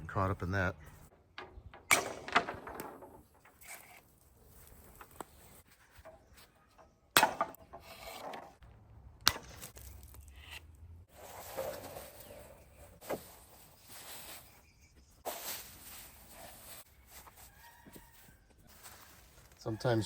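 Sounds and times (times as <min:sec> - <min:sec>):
wire scraping and rattling on wood: 0:01.0 - 0:08.6.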